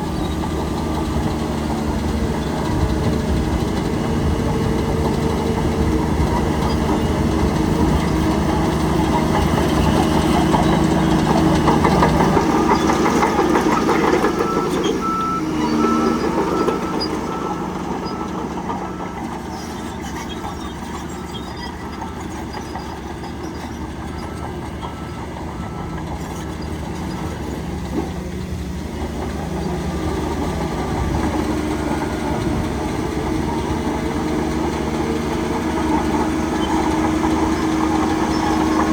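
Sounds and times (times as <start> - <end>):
bulldozer diesel engine running: 0.0 - 38.9
reversing alarm beeping: 6.1 - 27.5.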